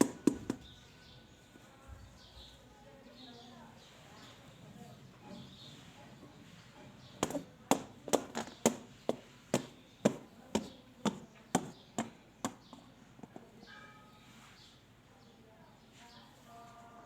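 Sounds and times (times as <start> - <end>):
sharp knocks: 0.0 - 0.6, 7.2 - 12.8.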